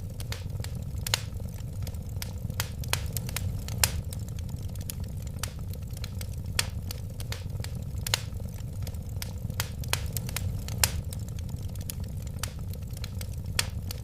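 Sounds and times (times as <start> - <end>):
fire pops and snaps: 0.0 - 14.0
low rumble of flames: 0.0 - 14.0
wood fire crackling: 0.0 - 14.0.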